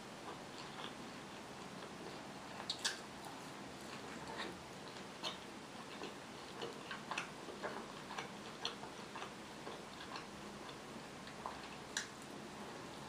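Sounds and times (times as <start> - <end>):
person chewing food: 0.2 - 13.0
wet mouth clicks and smacks: 2.7 - 3.0.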